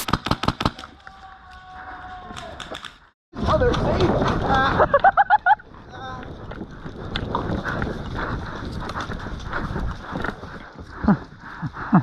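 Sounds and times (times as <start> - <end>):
footsteps on field: 0.0 - 3.1.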